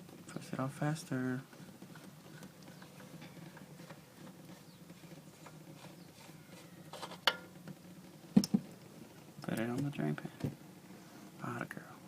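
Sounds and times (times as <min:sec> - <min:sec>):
light ticks and patter: 0:00.0 - 0:06.3, 0:07.2 - 0:10.5.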